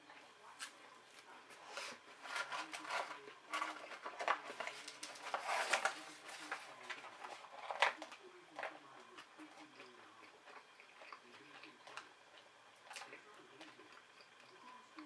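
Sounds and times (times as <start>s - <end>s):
chewing and wet mouth noises: 9.0s - 15.0s.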